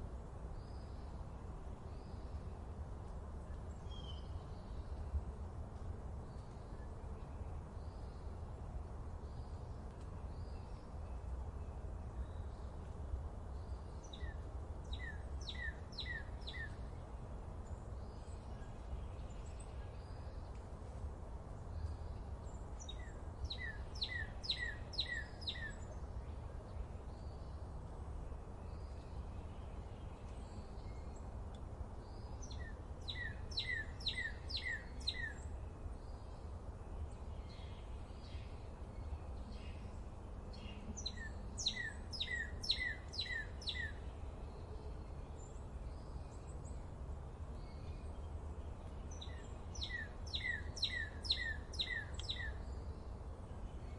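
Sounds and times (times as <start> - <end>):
songbird singing descending notes: 14.1 - 16.8, 22.8 - 26.0, 32.2 - 35.5, 40.5 - 44.0, 49.1 - 52.6
faint bird chirps: 21.6 - 27.6, 32.1 - 46.8, 48.9 - 53.9.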